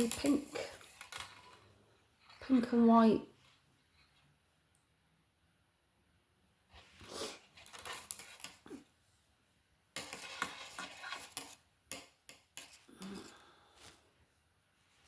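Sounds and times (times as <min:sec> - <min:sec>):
knitting needles clicking: 0:00.0 - 0:01.6.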